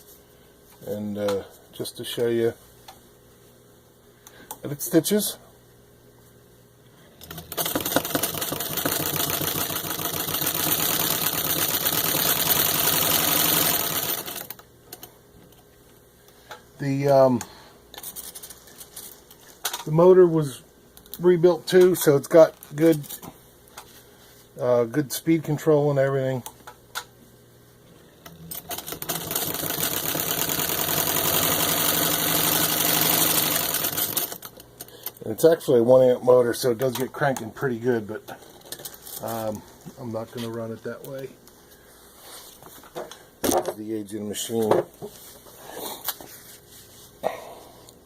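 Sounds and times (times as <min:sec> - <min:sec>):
sewing machine clattering: 0:07.2 - 0:14.6, 0:28.5 - 0:34.5.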